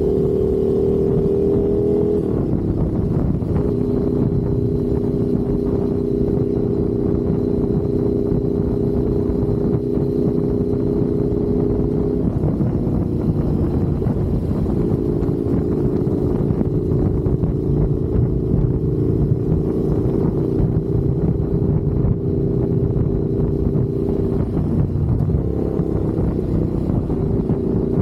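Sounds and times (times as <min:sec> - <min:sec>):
motorcycle engine running: 0:00.0 - 0:28.0
wind on microphone: 0:00.0 - 0:28.0.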